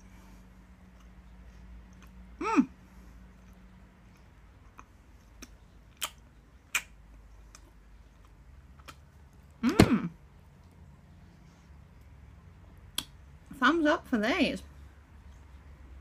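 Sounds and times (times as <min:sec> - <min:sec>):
chewing with mouth clicks: 0:00.8 - 0:02.3, 0:03.2 - 0:09.5, 0:15.1 - 0:16.0
person humming mmm: 0:02.4 - 0:02.8.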